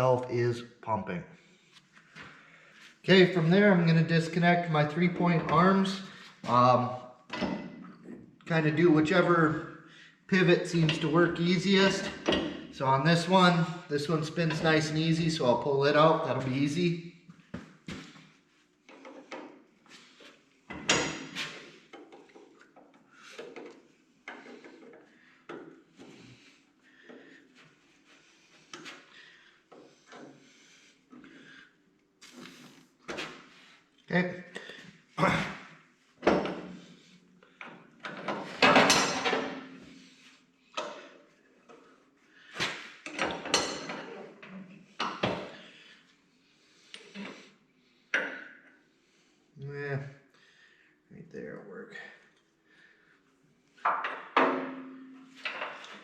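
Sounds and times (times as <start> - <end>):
metal clunks and scraping: 7.3 - 8.4, 10.7 - 13.6, 18.9 - 26.4, 36.2 - 40.1, 42.6 - 45.7, 53.8 - 56.0
metal clanks and knocks: 12.0 - 12.8, 20.7 - 22.5, 38.0 - 39.9, 53.9 - 56.0.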